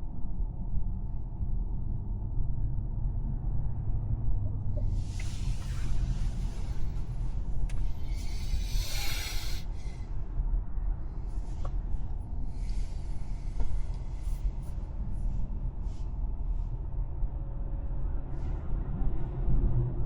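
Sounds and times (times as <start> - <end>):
road and tyre noise: 2.7 - 20.0
faint brief hisses: 8.0 - 10.0.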